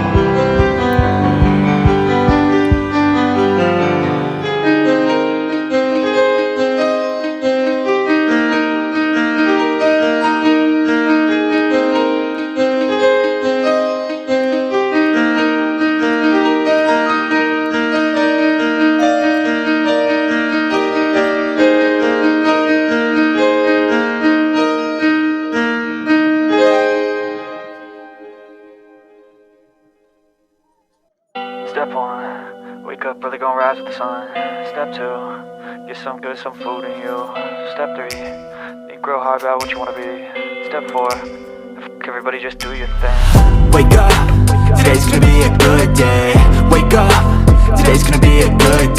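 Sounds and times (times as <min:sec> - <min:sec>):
background piano music: 0:00.0 - 0:30.6, 0:31.3 - 0:48.9.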